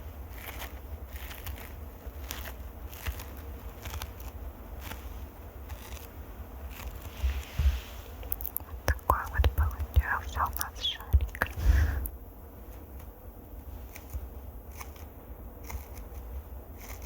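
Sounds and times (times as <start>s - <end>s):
microphone scratching: 6.7s - 12.1s
light taps on microphone: 11.1s - 11.6s.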